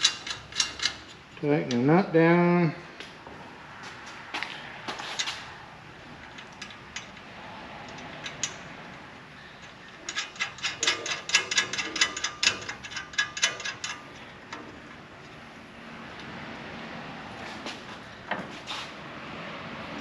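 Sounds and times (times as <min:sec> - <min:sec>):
ratchet wrench clicking: 0:00.0 - 0:01.8, 0:09.6 - 0:15.4.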